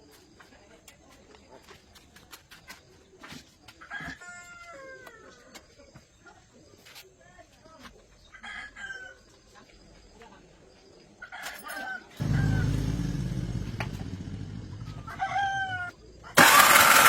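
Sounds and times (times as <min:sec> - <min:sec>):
farm machine engine rumbling: 0:12.2 - 0:17.0.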